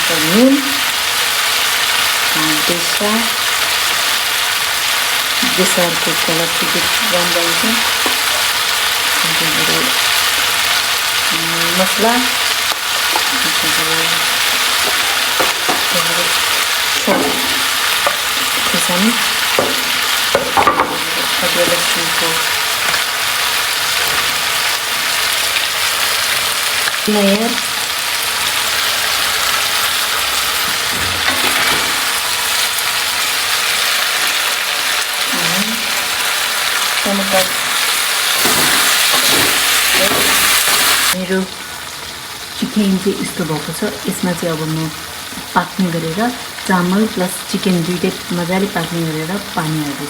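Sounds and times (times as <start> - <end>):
food sizzling in oil: 0.0 - 50.0
spatula scraping pan: 14.1 - 23.2, 37.3 - 41.2.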